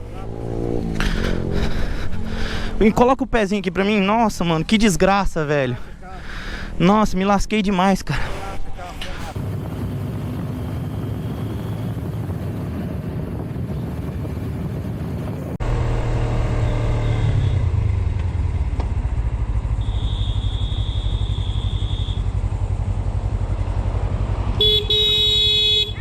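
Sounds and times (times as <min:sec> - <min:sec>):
motorcycle engine running: 0:09.2 - 0:26.0
vehicle horn: 0:19.8 - 0:22.4, 0:24.6 - 0:26.0.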